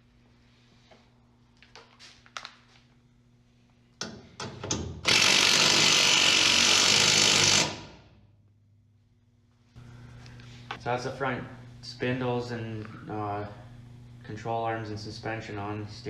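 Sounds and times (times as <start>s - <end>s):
power tool running: 5.0s - 8.1s.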